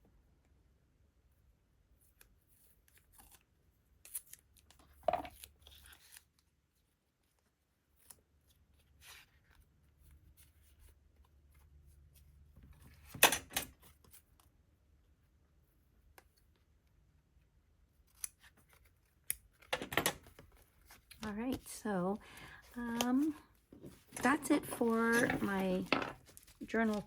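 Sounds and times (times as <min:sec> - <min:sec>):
paper rustling: 0:18.1 - 0:27.0.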